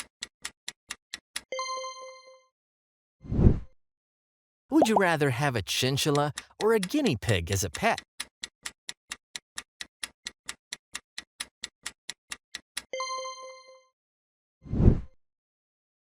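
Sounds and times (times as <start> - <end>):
timer ticking quickly: 4.7 - 8.0.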